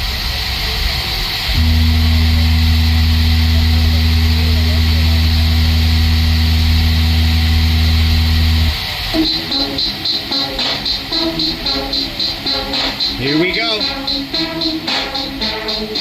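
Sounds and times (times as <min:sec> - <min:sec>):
loud low bass tone: 0:01.5 - 0:09.9.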